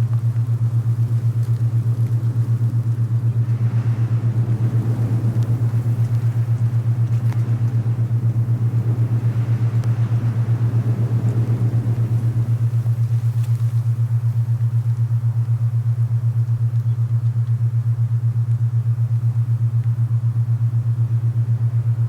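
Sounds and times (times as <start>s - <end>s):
wind blowing: 0.0s - 15.2s
low throbbing binaural tone: 0.0s - 22.0s.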